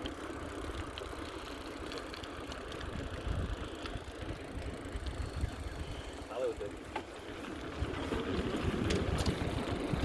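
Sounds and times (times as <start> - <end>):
bicycle tyre road noise: 0.0 - 10.0
wind buffeting microphone: 2.8 - 6.2, 7.2 - 10.0.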